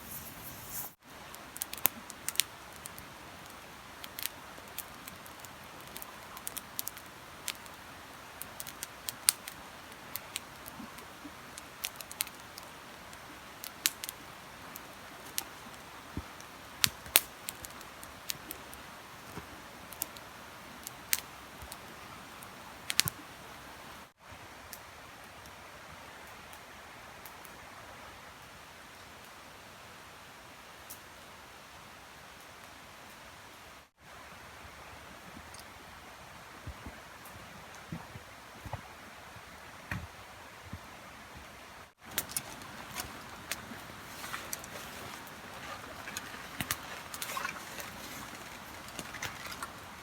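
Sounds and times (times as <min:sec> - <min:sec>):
campfire crackling and popping: 0:00.0 - 0:25.5, 0:42.0 - 0:50.0.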